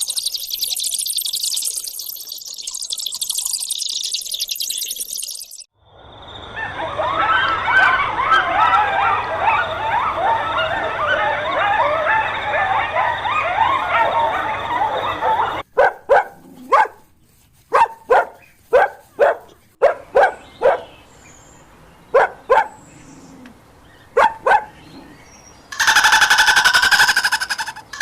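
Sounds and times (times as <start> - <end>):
dog barking: 6.6 - 17.1, 17.7 - 20.9, 22.1 - 22.8, 24.1 - 24.8
rapid buzzing rattle: 25.7 - 28.0.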